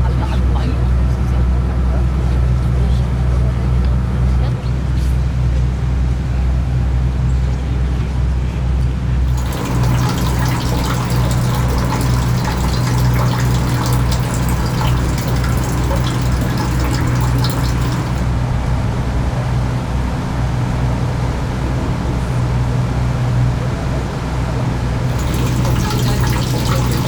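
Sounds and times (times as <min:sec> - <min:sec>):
steady low hum: 0:09.2 - 0:20.4, 0:24.8 - 0:27.0
water rushing and splashing: 0:09.3 - 0:18.4, 0:25.0 - 0:27.0.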